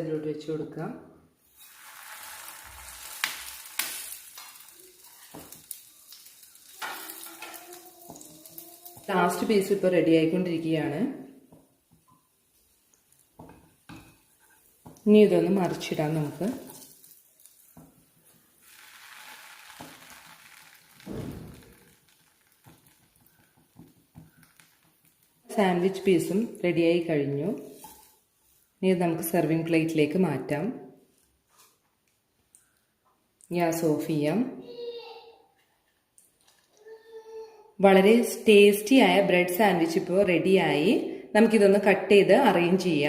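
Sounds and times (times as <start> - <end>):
butter sizzling on a griddle: 1.4 - 9.5, 11.5 - 25.5
dull thump: 21.1 - 21.8.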